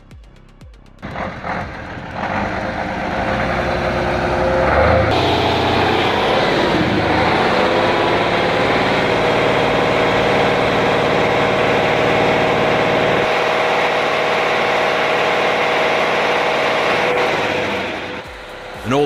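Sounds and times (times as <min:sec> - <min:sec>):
engine running steadily: 0:01.0 - 0:19.0.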